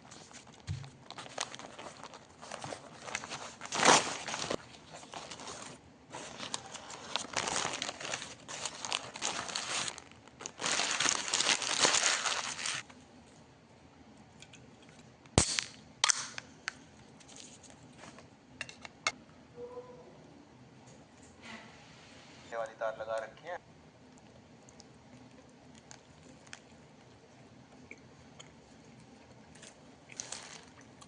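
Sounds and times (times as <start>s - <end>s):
wrapping crinkling and rustling: 0.0s - 13.4s, 29.5s - 31.0s.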